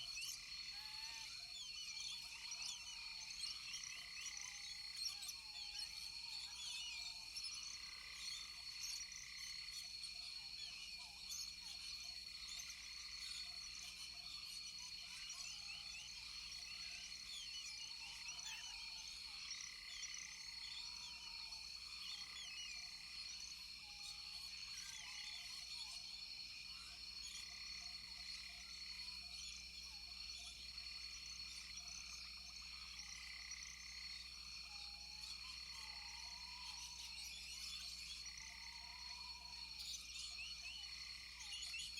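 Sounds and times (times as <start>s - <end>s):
high insect drone: 6.4s - 41.9s
frogs calling: 29.8s - 37.2s.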